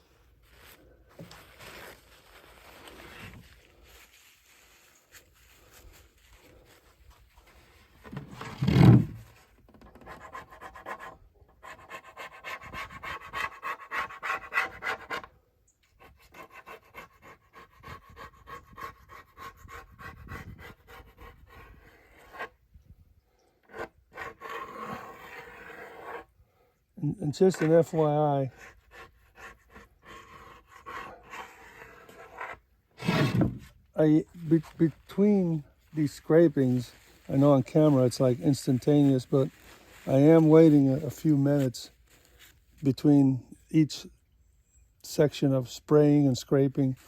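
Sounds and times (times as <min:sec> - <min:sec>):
plastic scraper scraping wood: 0:08.0 - 0:15.3, 0:23.6 - 0:26.3, 0:28.5 - 0:33.8.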